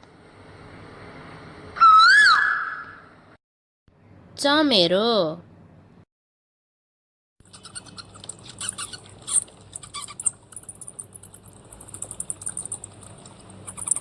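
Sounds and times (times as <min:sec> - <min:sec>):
bats squeaking: 0:07.4 - 0:14.0.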